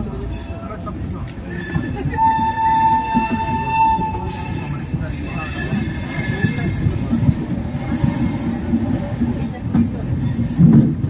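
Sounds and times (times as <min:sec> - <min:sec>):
high-pitched wheel squeal: 0:01.5 - 0:06.8.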